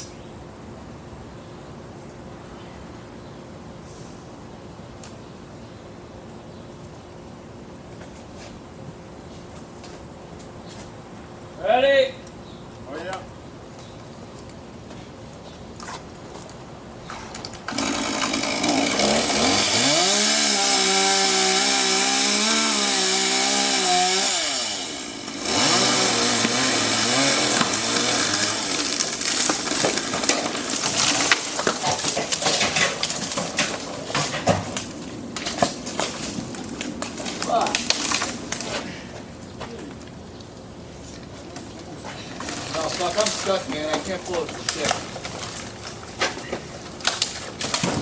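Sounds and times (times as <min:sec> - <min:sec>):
chainsaw revving: 0:17.7 - 0:31.2.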